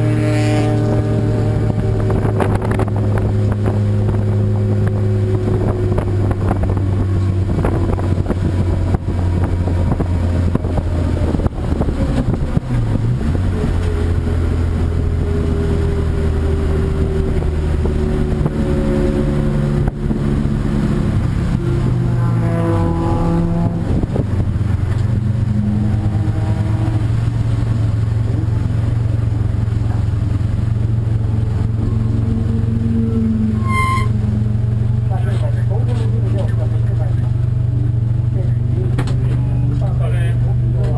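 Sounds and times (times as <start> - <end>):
race car engines running: 0.0 - 40.9
car engine note sweeping down: 16.7 - 27.5, 32.1 - 34.8.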